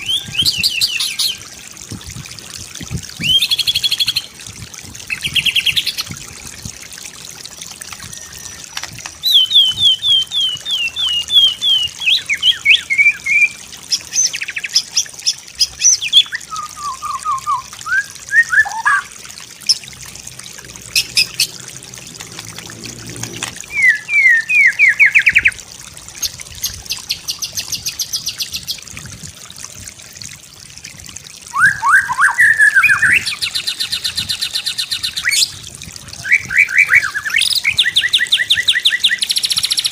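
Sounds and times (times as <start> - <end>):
bird singing varied phrases: 0.0 - 1.5, 3.1 - 4.3, 8.0 - 19.9, 23.6 - 25.6, 31.5 - 35.6, 36.2 - 39.9
faint trickle of water: 0.0 - 39.9.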